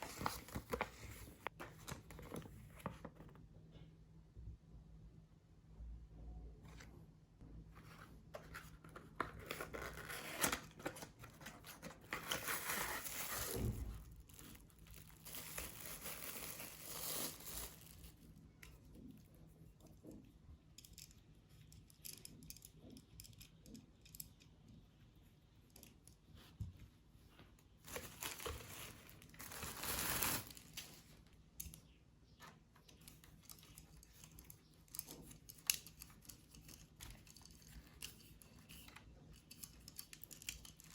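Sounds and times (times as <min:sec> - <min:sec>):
packaging crinkling and tearing: 0:09.2 - 0:18.2, 0:27.8 - 0:31.0.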